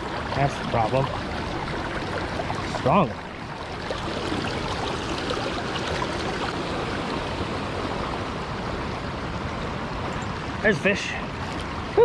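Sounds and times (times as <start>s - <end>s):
water pouring over spillway: 0.0s - 9.2s.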